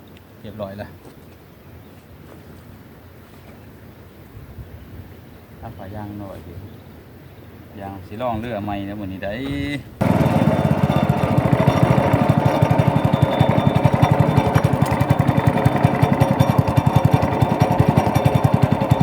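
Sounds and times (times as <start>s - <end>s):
boat engine chugging: 10.0s - 19.0s.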